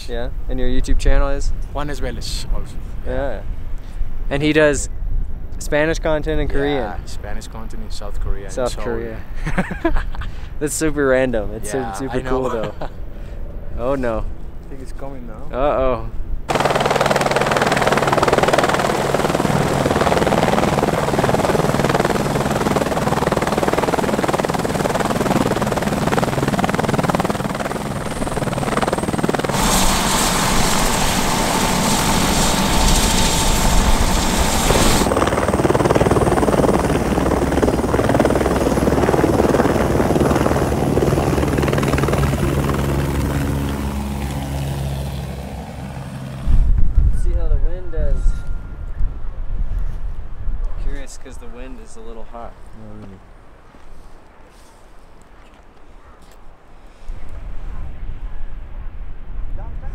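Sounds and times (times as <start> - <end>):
helicopter rotor and engine: 5.7 - 10.1, 11.1 - 14.6, 16.5 - 46.8.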